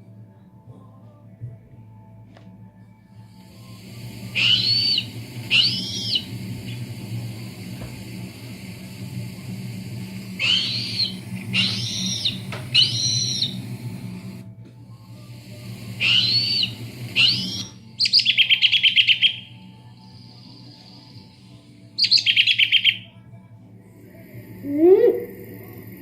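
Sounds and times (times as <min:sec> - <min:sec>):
low steady hum: 0:00.0 - 0:26.0
rapid rattling trill: 0:03.7 - 0:14.4, 0:15.4 - 0:21.4
recorded bird calls through loudspeaker: 0:04.2 - 0:06.9, 0:10.4 - 0:13.8, 0:16.0 - 0:21.2, 0:22.0 - 0:23.2.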